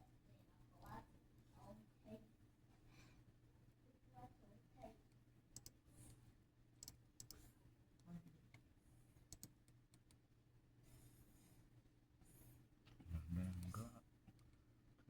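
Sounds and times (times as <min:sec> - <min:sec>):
faint irregular clicks: 0:05.1 - 0:06.2, 0:06.8 - 0:10.2.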